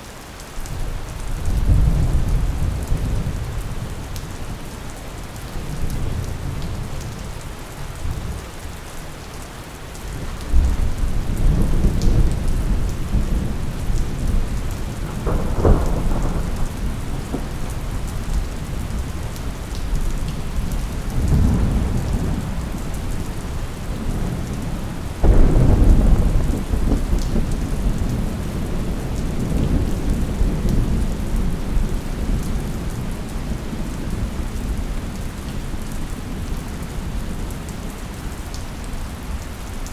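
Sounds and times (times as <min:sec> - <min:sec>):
steady rain falling: 0:00.0 - 0:39.9
thunder rumbling: 0:10.2 - 0:33.2.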